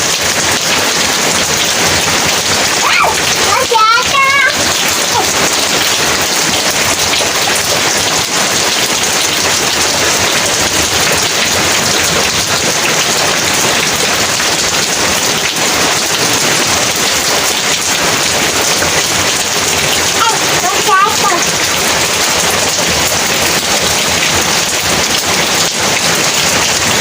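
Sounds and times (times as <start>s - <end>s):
heavy rain hissing: 0.0s - 27.0s.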